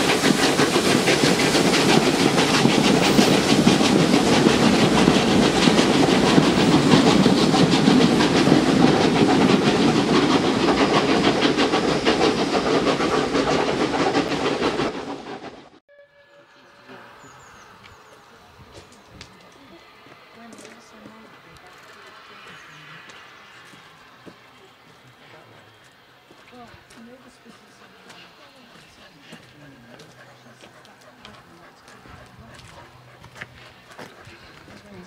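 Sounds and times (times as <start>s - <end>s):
steam hiss: 0.0s - 15.5s
train wheels clattering on rails: 0.0s - 15.5s.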